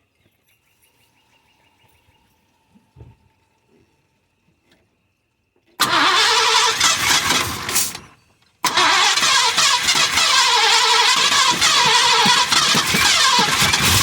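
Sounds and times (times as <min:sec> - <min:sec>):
car engine cranking by starter: 0:05.8 - 0:14.0.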